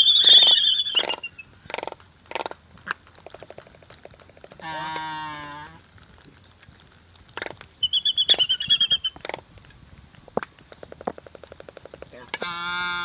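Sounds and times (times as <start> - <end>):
drawn-out harmonic animal call: 0.0 - 1.6, 7.8 - 9.4
sharp clicks: 6.0 - 12.4.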